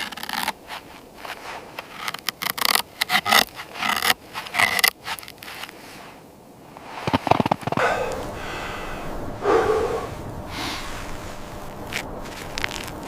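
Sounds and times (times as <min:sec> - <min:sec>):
scraping rasping strokes: 0:00.0 - 0:06.2.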